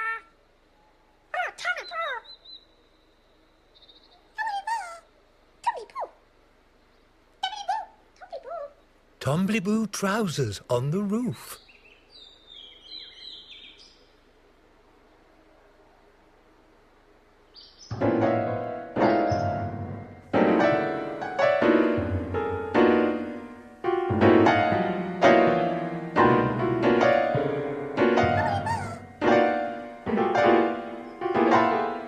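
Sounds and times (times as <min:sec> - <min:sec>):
slow sad piano chords: 0:17.9 - 0:32.0.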